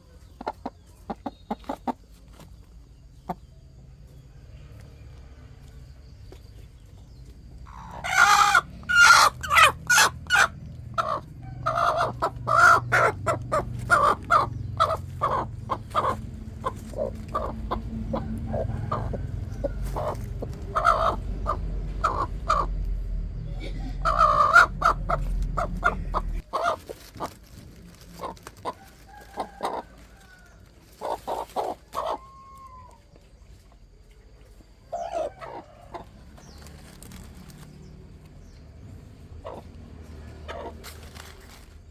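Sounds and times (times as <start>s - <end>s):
chickens clucking: 0.0s - 5.0s, 5.6s - 41.7s
low rumble: 10.2s - 26.5s.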